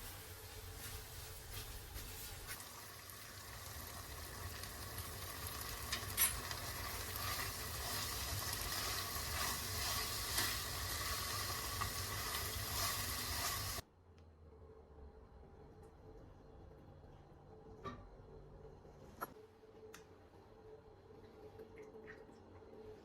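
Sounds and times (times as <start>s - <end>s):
food sizzling in a hot pan: 0.0s - 13.8s.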